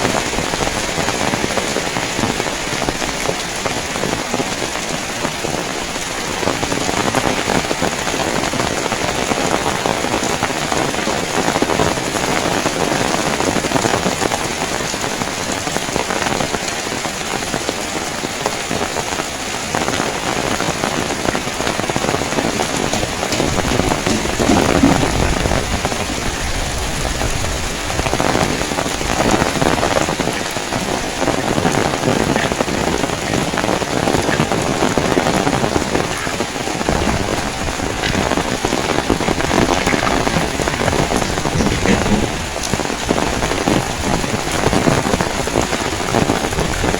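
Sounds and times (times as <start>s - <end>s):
heavy rain: 0.0s - 46.9s
deep rumble: 22.6s - 29.9s, 30.8s - 45.2s.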